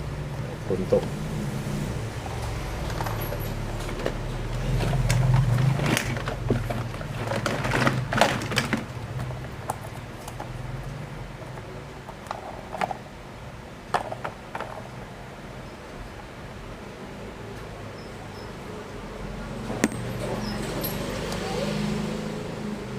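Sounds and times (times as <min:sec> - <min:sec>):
plastic toys clicking and knocking: 0:02.9 - 0:10.6, 0:11.4 - 0:13.1, 0:13.9 - 0:15.0.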